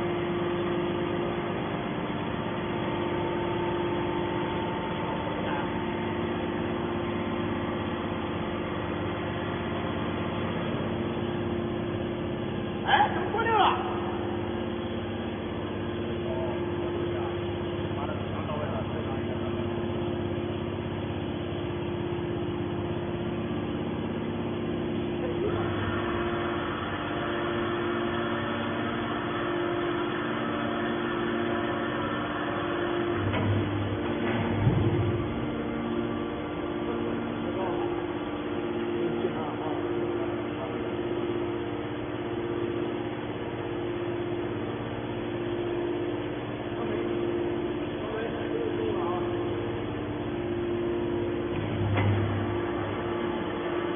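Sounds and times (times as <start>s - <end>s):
baler machine humming: 0.0s - 53.9s
bright noisy machine layer: 22.2s - 53.9s.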